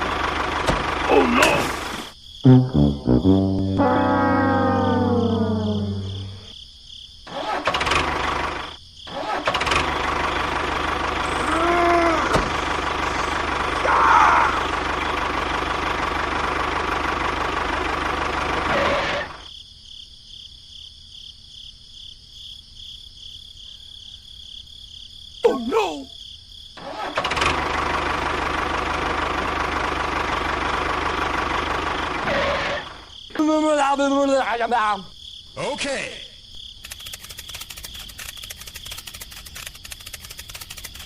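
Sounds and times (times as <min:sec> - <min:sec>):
mechanical engine-like running noise: 0:00.0 - 0:01.2, 0:07.5 - 0:19.5, 0:27.2 - 0:33.0, 0:36.8 - 0:41.0
falling brass-like tone: 0:02.5 - 0:06.5.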